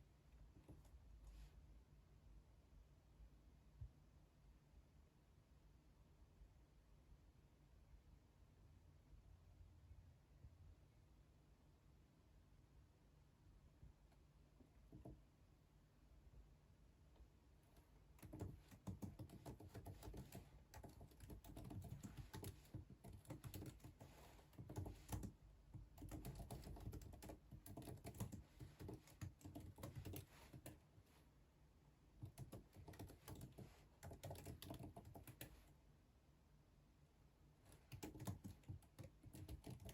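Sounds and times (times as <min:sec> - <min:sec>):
typing on computer keyboard: 0:17.7 - 0:30.8, 0:32.2 - 0:35.7, 0:37.7 - 0:39.9.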